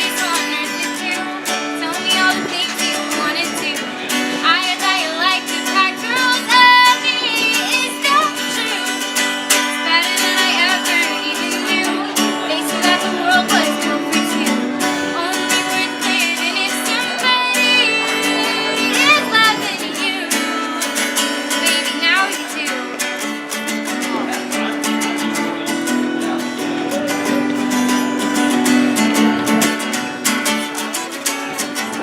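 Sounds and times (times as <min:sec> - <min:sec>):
acoustic guitar strumming: 0:00.0 - 0:32.0
person singing: 0:00.0 - 0:32.0.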